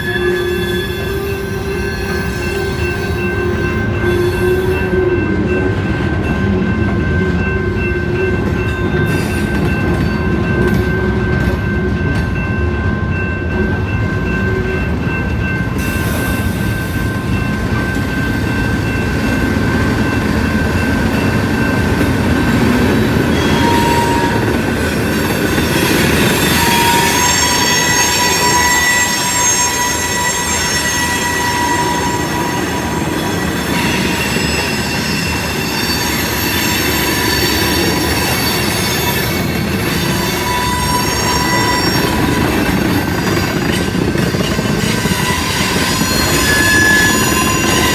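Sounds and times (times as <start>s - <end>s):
high-pitched wheel squeals: 0.0s - 5.3s, 23.2s - 47.9s
railroad cars rumbling past: 0.0s - 47.9s.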